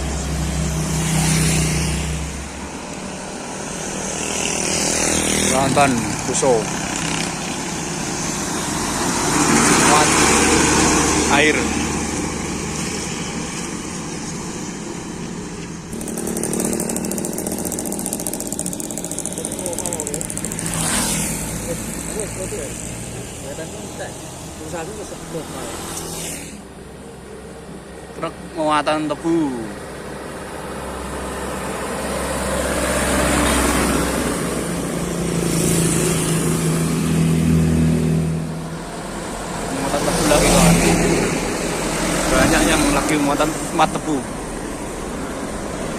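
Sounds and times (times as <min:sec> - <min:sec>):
heavy truck passing: 0:00.0 - 0:27.3, 0:29.7 - 0:45.9
engine humming: 0:00.0 - 0:45.9
rattling engine ticking: 0:15.9 - 0:20.8.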